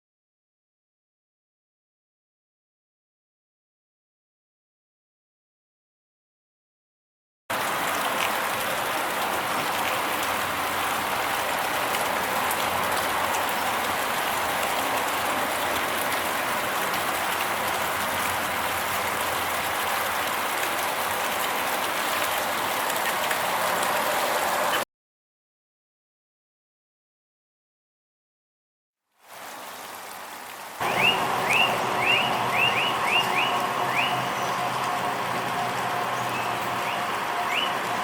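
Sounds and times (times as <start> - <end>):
steady rain: 7.5 - 24.8, 29.1 - 38.0.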